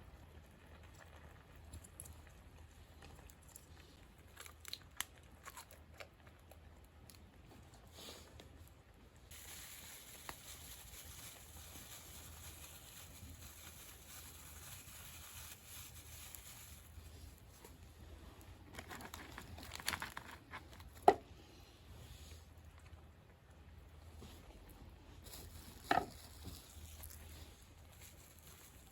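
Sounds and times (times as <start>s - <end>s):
rustling and crinkling: 9.3s - 21.2s, 24.0s - 28.9s.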